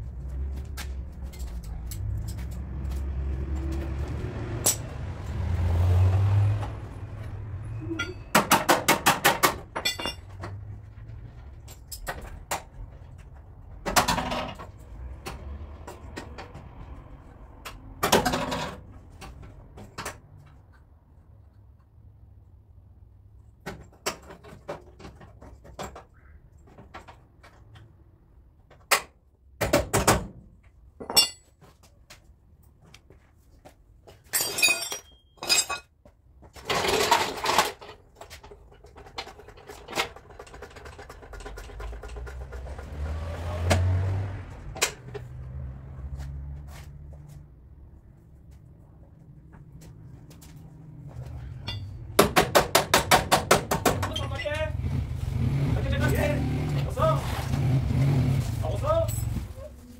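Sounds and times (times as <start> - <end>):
metal knocks and clanks: 7.9 - 16.8, 36.5 - 43.1, 51.5 - 54.4.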